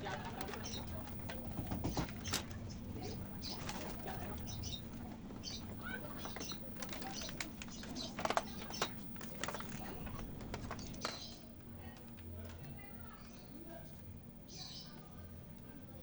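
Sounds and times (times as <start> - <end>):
birds chirping: 0.0 - 16.0
steady low hum: 0.0 - 16.0.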